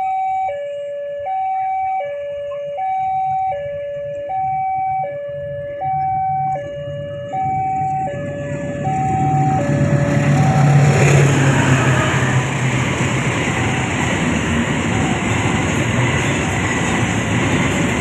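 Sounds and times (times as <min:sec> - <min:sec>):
level crossing alarm two-tone: 0:00.0 - 0:11.0
diesel locomotive rumble: 0:03.7 - 0:18.0.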